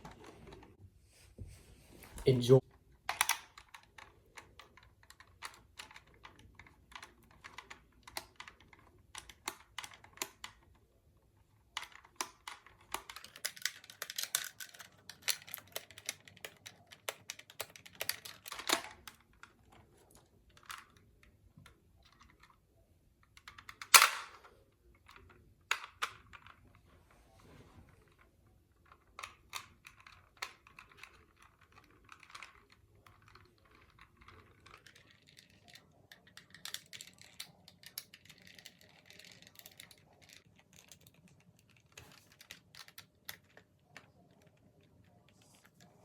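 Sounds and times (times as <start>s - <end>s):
plastic toy clicking and tapping: 3.1s - 10.9s, 11.7s - 19.8s, 28.9s - 45.2s.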